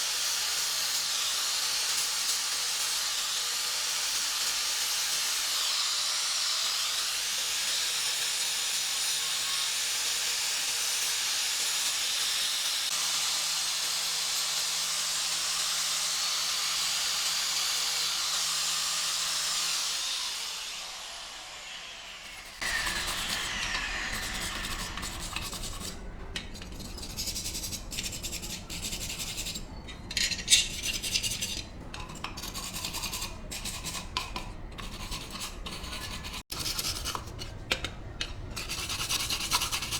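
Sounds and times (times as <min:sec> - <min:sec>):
hand scraping and rubbing surface: 0:22.3 - 0:37.7.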